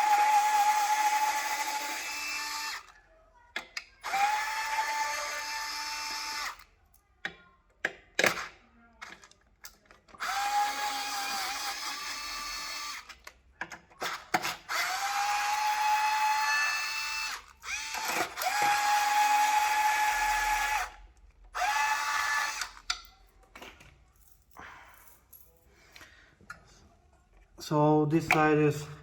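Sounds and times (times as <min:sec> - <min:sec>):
power drill whining: 0:00.0 - 0:02.9, 0:04.0 - 0:06.7, 0:10.2 - 0:13.2, 0:14.0 - 0:21.0, 0:21.6 - 0:22.9.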